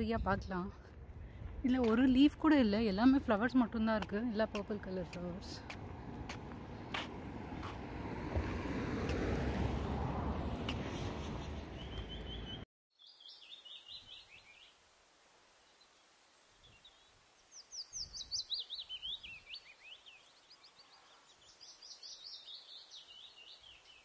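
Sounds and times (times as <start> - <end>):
bird chirping: 10.9 - 14.8, 16.6 - 24.0.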